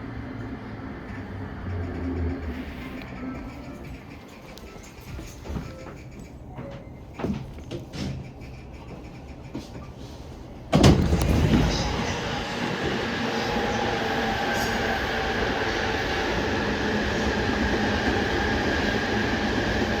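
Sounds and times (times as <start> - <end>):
wheels rumbling on rails: 0.0 - 9.8, 11.0 - 20.0
freight train passing: 10.4 - 20.0.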